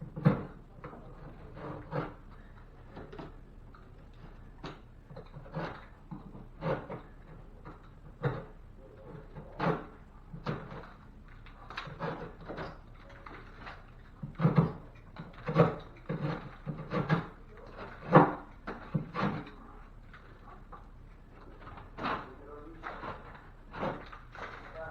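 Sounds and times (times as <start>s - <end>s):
knocks and thumps of drywall: 0.0s - 1.0s, 13.5s - 19.6s.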